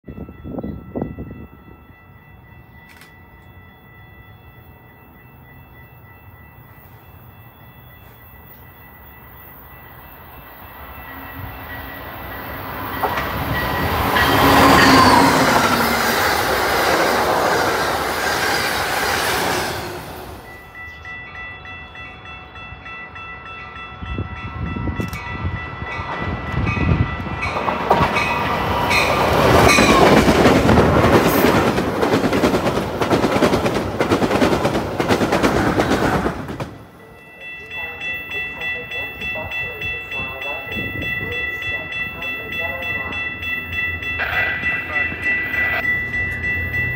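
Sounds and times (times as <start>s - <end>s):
train passing at speed: 0.1s - 46.9s.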